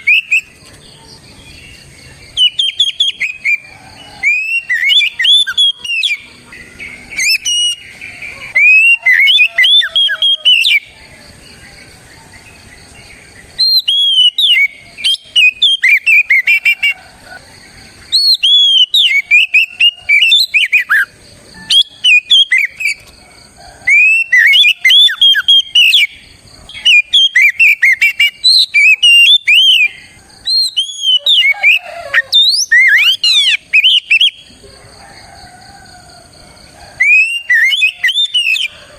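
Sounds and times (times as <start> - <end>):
bird singing whistled phrases: 0.0 - 0.6, 2.4 - 6.3, 7.2 - 7.8, 8.5 - 10.9, 13.6 - 17.0, 18.1 - 23.0, 23.9 - 26.1, 26.8 - 34.4, 37.0 - 38.7.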